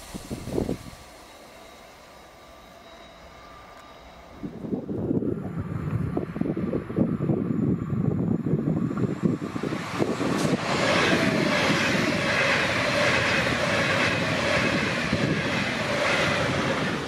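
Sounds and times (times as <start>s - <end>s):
mid-pitched whine: 0.0s - 9.5s
train rushing past: 0.0s - 17.0s.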